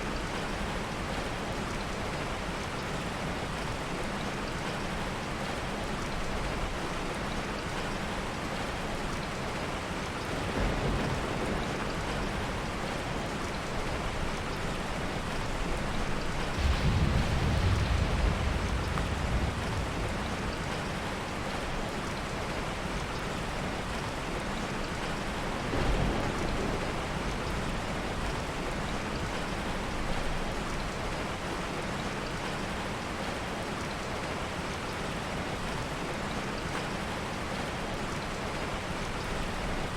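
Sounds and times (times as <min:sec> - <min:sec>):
heavy rain: 0:00.0 - 0:39.9
soft thunder rumble: 0:09.7 - 0:32.8.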